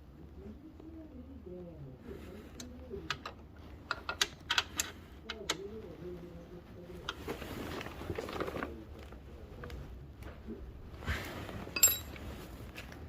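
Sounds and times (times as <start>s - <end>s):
scraping rustle: 7.0s - 9.2s
metal tools clicking and knocking: 11.8s - 12.2s.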